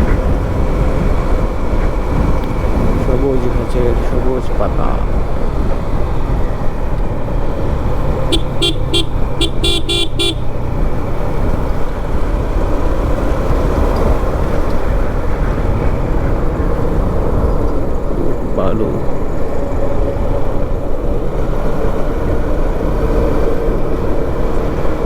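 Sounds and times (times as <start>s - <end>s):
motorcycle engine and wind rumble: 0.0s - 25.0s
vehicle horn short beeps: 8.3s - 10.5s.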